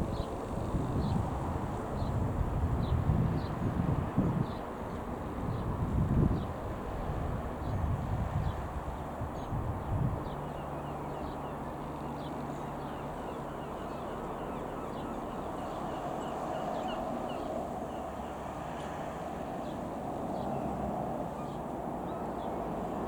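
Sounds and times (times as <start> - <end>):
wind buffeting microphone: 0.0 - 10.7.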